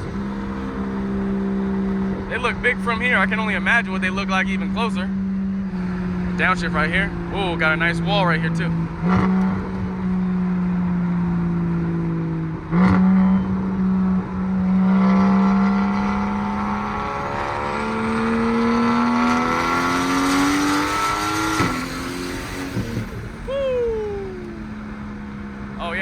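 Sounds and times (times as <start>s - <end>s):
car engine revving: 0.0s - 26.0s
exhaust cracks: 15.6s - 26.0s.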